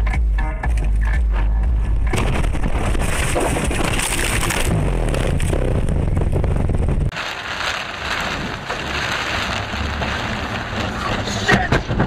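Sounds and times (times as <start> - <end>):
heavy rain on a car: 7.1 - 12.0.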